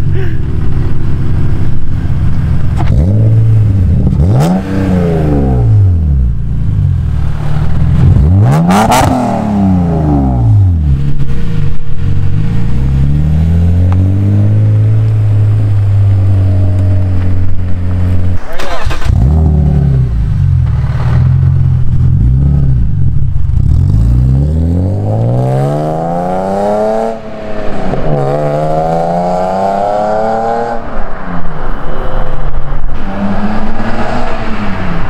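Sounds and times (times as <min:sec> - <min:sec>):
car engine revving hard: 0:02.8 - 0:06.2, 0:07.4 - 0:10.8, 0:17.9 - 0:20.2, 0:23.6 - 0:30.8.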